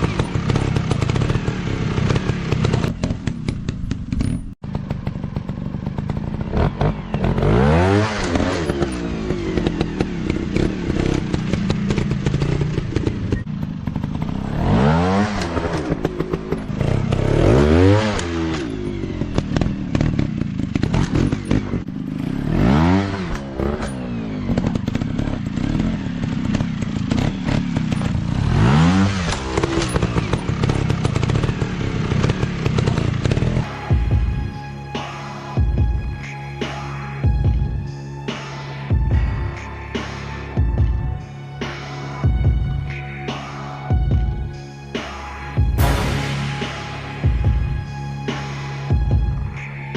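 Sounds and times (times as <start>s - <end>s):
dirt bike engine revving: 0.0s - 34.1s.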